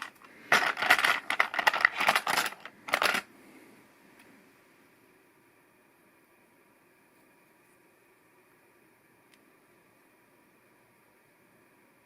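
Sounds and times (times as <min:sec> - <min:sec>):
plastic pieces clattering: 0:00.0 - 0:03.3.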